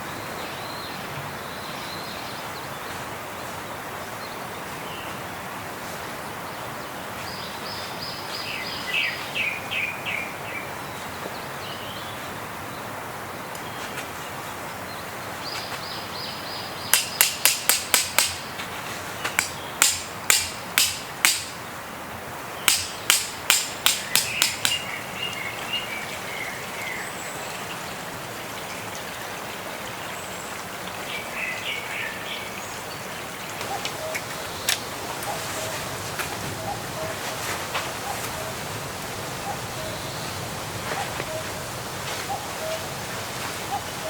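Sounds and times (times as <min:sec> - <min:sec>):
birds chirping: 0:22.5 - 0:44.0.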